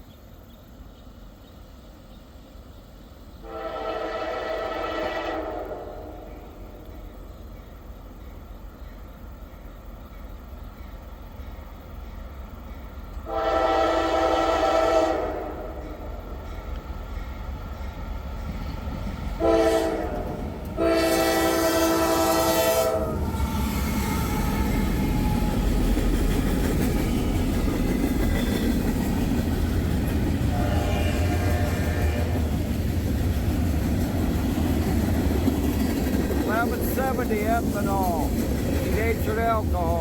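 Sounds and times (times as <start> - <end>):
train rumbling past: 0.0 - 40.0
locomotive air horn: 3.4 - 6.5, 13.3 - 15.8, 19.4 - 25.5, 30.5 - 32.5.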